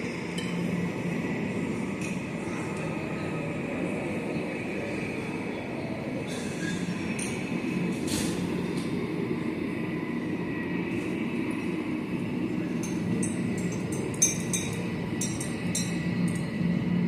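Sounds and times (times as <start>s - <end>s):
light clinks: 12.8s - 16.6s.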